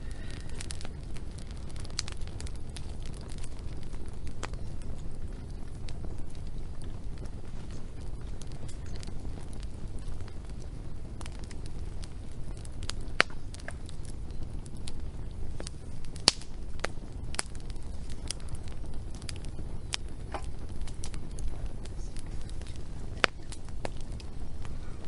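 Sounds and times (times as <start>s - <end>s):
fire rumbling: 0.0s - 25.0s
wood popping and snapping: 11.2s - 14.1s, 15.6s - 25.0s.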